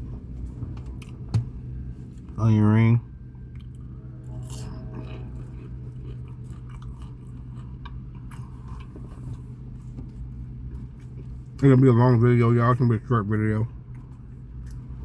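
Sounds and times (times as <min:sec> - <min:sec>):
steady low hum: 0:00.0 - 0:15.0
chewing crunchy fried food: 0:03.5 - 0:11.6, 0:13.7 - 0:15.0.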